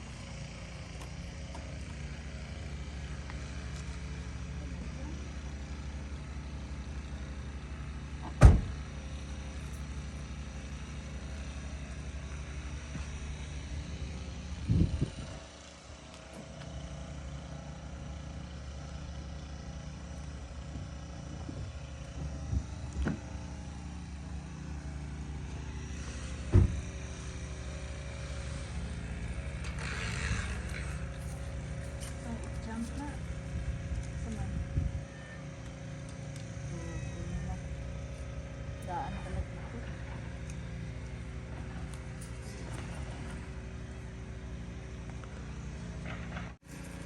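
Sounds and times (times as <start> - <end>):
car engine idling: 0.0 - 47.0
sharp thump: 8.4 - 8.7, 26.5 - 26.9.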